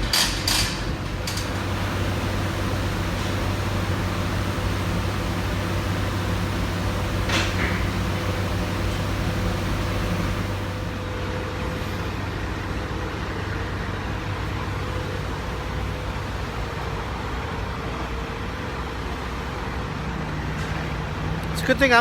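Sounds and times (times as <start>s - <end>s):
diesel truck engine idling: 0.9s - 11.8s.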